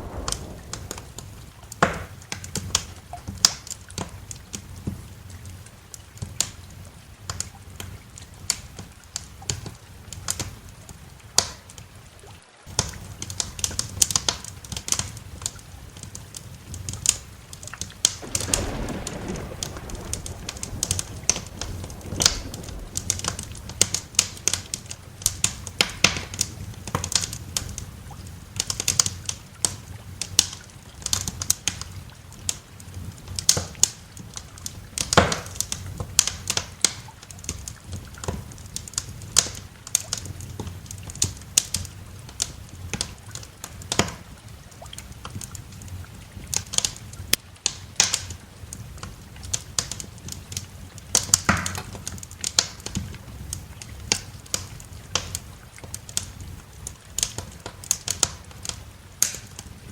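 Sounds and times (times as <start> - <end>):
distant thunder rumble: 0.0 - 3.0, 17.9 - 27.8
wood fire crackling: 0.0 - 59.9.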